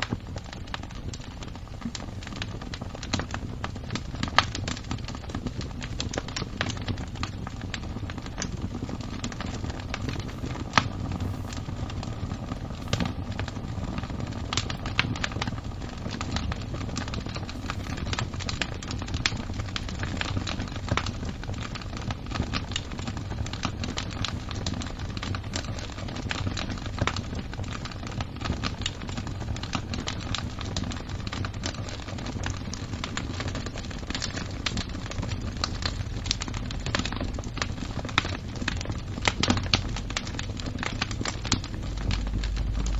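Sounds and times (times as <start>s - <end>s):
wood fire crackling: 0.0s - 42.9s.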